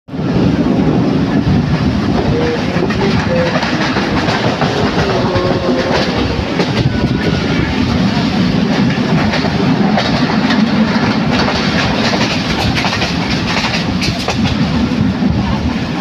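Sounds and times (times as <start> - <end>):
train rumbling on track: 0.1 - 16.0
wheels clicking over rails: 1.6 - 14.9.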